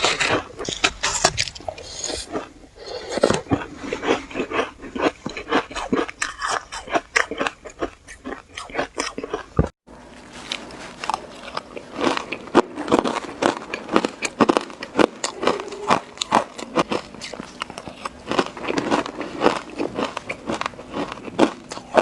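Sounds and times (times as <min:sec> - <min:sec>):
crunching shaved ice: 0:10.4 - 0:22.0.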